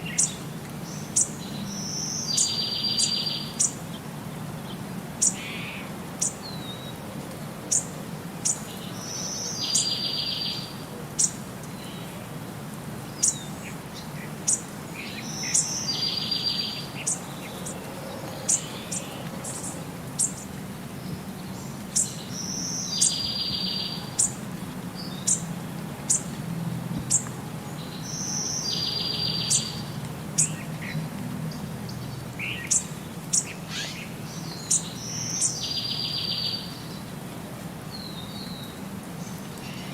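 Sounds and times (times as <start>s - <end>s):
birds chirping: 0.0s - 7.0s, 7.7s - 12.2s, 13.0s - 26.4s, 27.0s - 37.1s.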